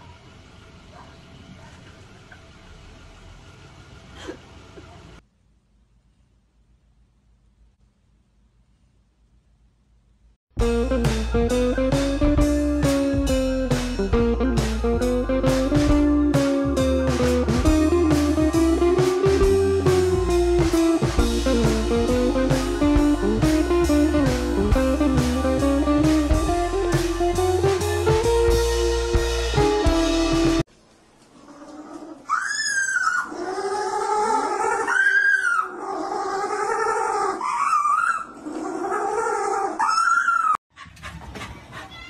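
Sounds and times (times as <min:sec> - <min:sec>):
guitar music with drum beat: 0:10.6 - 0:30.7.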